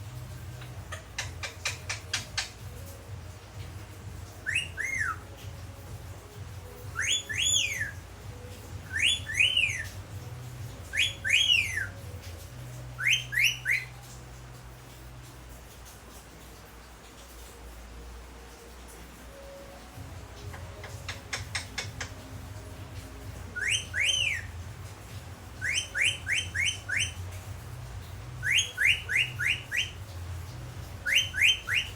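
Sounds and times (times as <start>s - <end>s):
parakeet sharp clicks: 0.6s - 2.7s, 20.5s - 22.3s
parakeet whistling: 0.6s - 2.7s, 4.4s - 5.4s, 6.9s - 8.1s, 8.8s - 10.0s, 10.8s - 12.1s, 13.0s - 14.0s, 23.4s - 24.6s, 25.4s - 27.4s, 28.3s - 30.2s, 30.9s - 31.9s.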